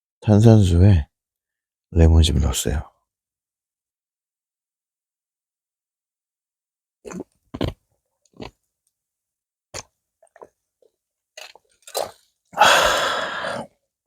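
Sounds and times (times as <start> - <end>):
person gulping a drink: 7.0 - 8.7, 9.7 - 13.8
person sighing ahh: 12.6 - 13.7.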